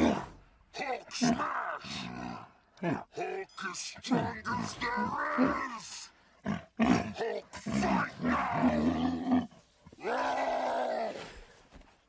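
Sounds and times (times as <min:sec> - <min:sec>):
camel groaning: 0:04.1 - 0:11.4.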